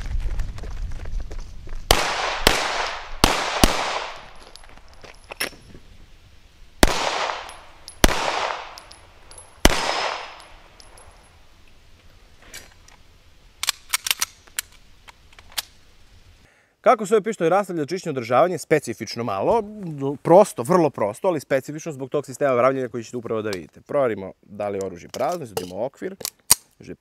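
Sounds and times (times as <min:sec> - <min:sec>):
pistol shots echoing: 0:01.9 - 0:04.5, 0:06.8 - 0:11.1
metallic gun handling clicks: 0:08.7 - 0:09.5, 0:10.3 - 0:11.2, 0:13.6 - 0:15.8.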